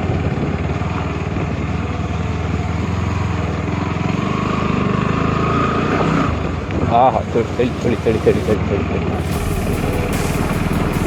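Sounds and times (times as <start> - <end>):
thin whine: 6.9 - 8.6, 9.2 - 11.0.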